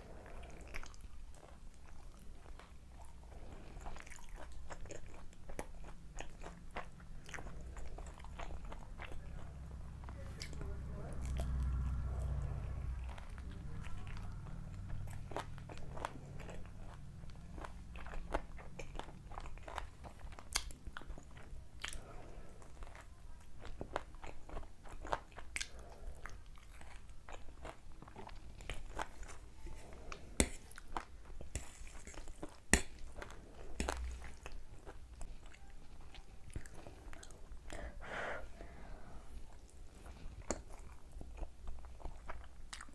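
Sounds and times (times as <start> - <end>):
crunchy chewing: 0.0 - 37.9, 39.1 - 42.9.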